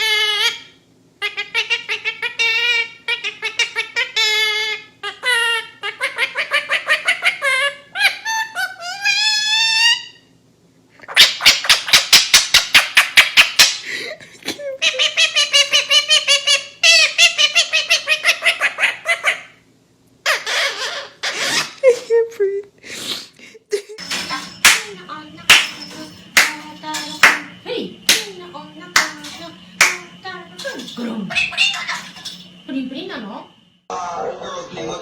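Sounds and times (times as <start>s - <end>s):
parrot mimicking laughter: 0.0s - 10.2s, 14.4s - 19.6s, 20.2s - 22.3s, 30.8s - 32.2s.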